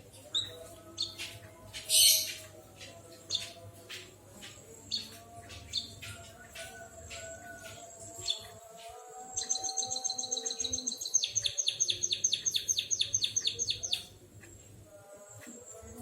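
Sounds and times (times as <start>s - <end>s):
small bird singing trill: 4.5s - 8.6s, 9.3s - 14.1s
high bird chirps: 9.4s - 14.1s.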